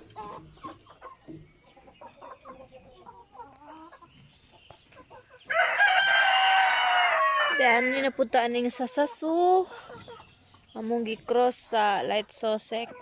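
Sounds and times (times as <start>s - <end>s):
chickens clucking: 0.0s - 13.0s
rooster crowing: 5.5s - 8.1s.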